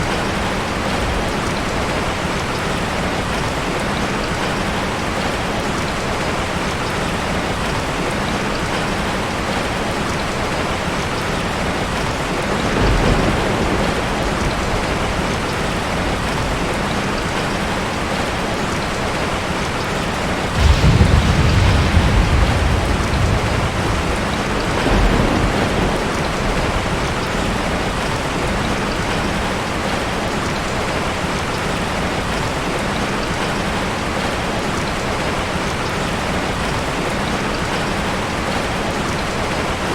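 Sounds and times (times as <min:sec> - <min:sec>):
heavy rain falling: 0:00.0 - 0:39.9
thunder rumbling: 0:12.4 - 0:16.7, 0:20.4 - 0:29.7.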